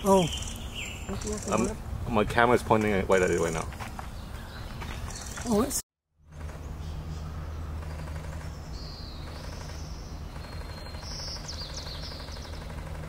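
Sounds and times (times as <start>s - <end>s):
faint high bird chirps: 0.0s - 1.6s, 6.7s - 12.9s
steady low hum: 6.2s - 13.0s.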